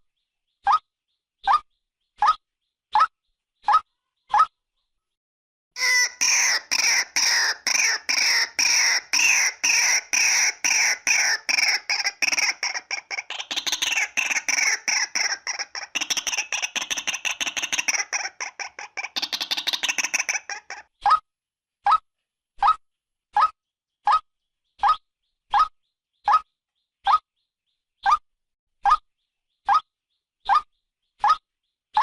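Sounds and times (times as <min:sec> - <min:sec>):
waterhen harsh repeated calls: 0:05.8 - 0:20.8.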